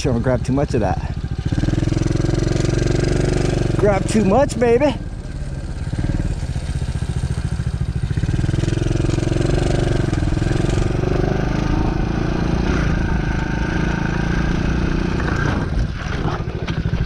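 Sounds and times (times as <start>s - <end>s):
motorbike engine under throttle: 0.0s - 17.0s.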